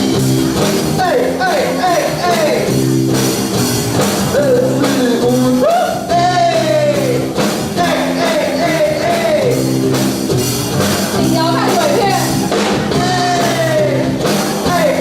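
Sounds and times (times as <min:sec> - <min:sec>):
rock band chords: 0:00.0 - 0:15.0
person singing: 0:04.3 - 0:09.7, 0:11.2 - 0:15.0.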